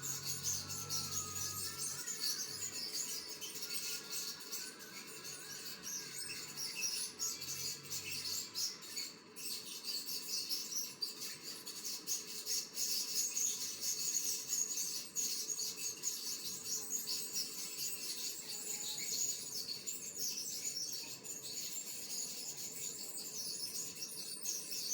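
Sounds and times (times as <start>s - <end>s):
birds chirping: 0.0s - 9.1s.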